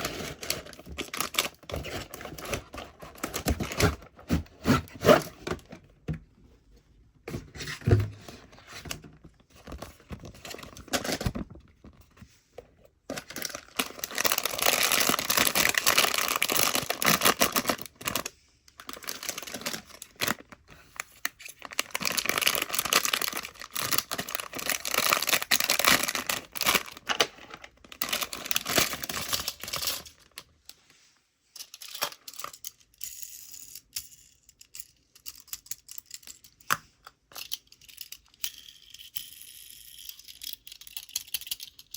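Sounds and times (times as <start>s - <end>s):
packaging tearing and crinkling: 0.0s - 4.0s, 13.1s - 20.6s, 21.3s - 30.3s.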